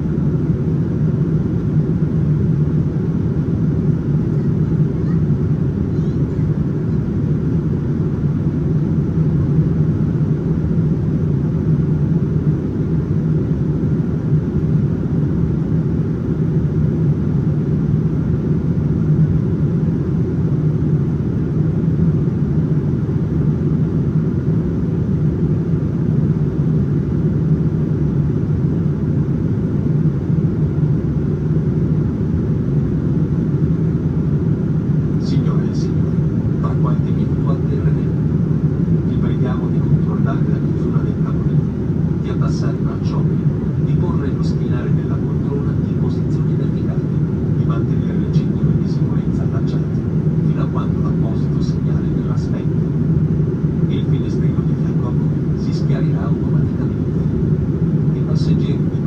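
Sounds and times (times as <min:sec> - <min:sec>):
airplane cabin rumble: 0:00.0 - 0:59.0.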